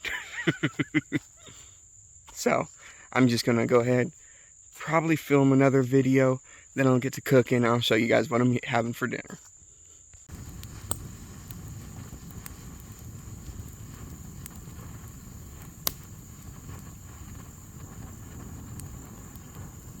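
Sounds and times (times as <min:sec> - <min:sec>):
insects droning: 0:00.0 - 0:20.0
wind rumble on microphone: 0:10.3 - 0:20.0
sharp clicks: 0:10.5 - 0:11.6, 0:12.4 - 0:19.8.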